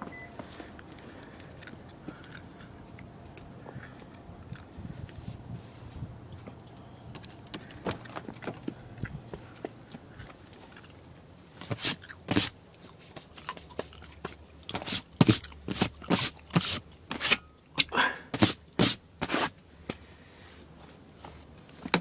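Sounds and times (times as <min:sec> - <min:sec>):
footsteps crunching in snow: 0:11.6 - 0:12.5, 0:14.8 - 0:17.4, 0:18.4 - 0:19.5.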